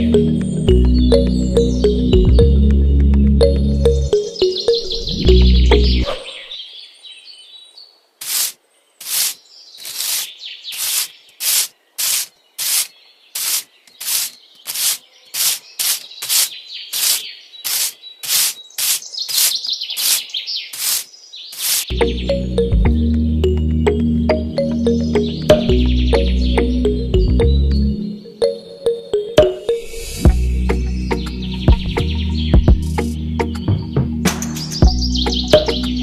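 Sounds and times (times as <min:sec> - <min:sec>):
birds chirping: 0:00.0 - 0:36.0
scraping strokes: 0:08.2 - 0:21.9.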